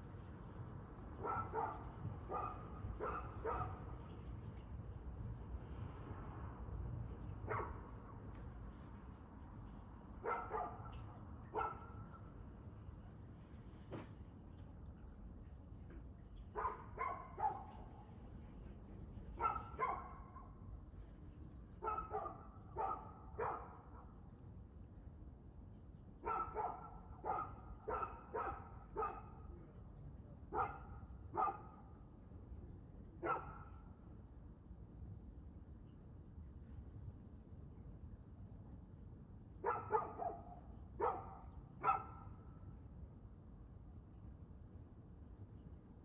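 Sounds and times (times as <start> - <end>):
dog barking: 1.2 - 3.8, 7.5 - 7.8, 10.2 - 12.0, 16.6 - 17.8, 19.4 - 20.3, 21.8 - 23.8, 26.2 - 29.4, 30.5 - 31.8, 33.2 - 33.8, 39.6 - 42.3.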